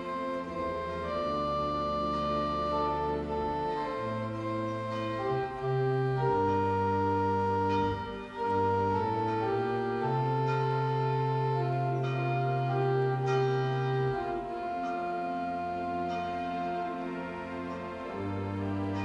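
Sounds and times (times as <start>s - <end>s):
organ playing slow chords: 0.0s - 19.0s.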